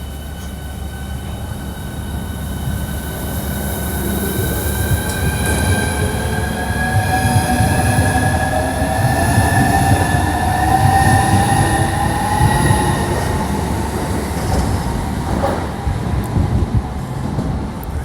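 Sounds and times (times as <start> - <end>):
electric train whine rising: 0.0 - 17.2
train wheels rumbling on rail: 0.0 - 18.0.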